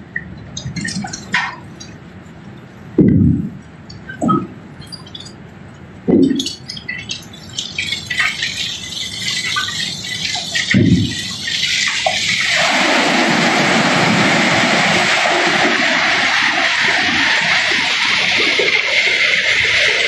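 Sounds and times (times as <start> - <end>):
heavy thuds: 3.0 - 3.6
rocks pouring: 7.7 - 19.0.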